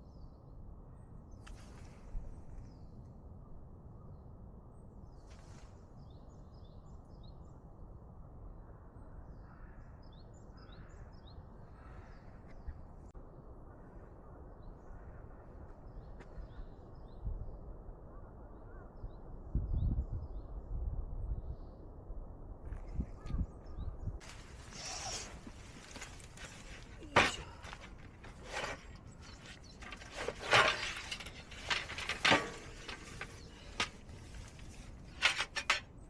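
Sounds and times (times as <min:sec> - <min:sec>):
low outdoor rumble: 0:24.2 - 0:36.0.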